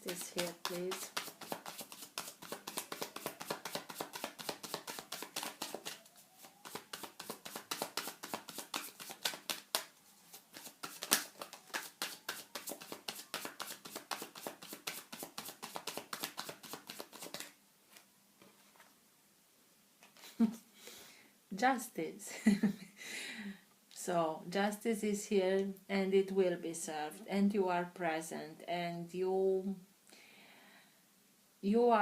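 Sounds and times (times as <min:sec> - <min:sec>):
cards being shuffled: 0:00.0 - 0:18.9.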